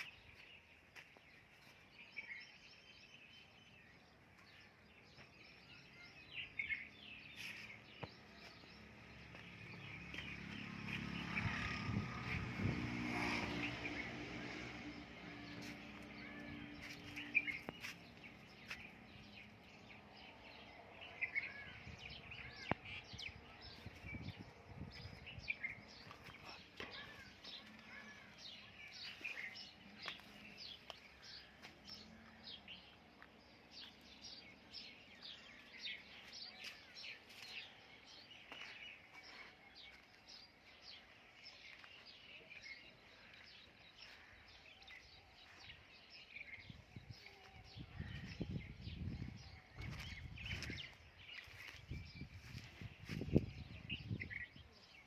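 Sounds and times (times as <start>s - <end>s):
small birds chirping: 0.0s - 55.0s
vehicle passing by: 8.6s - 17.7s.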